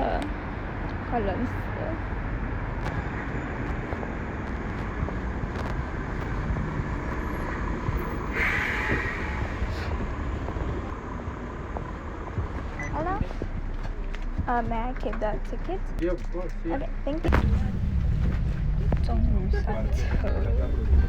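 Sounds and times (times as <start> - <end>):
coach engine rumbling: 0.0 - 21.0
air brake hiss: 8.3 - 9.9.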